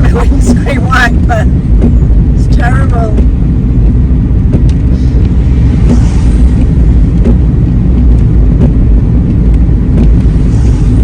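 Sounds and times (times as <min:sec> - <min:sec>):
engine and tyres on wet road: 0:00.0 - 0:11.0
windscreen wipers sweeping: 0:00.0 - 0:11.0.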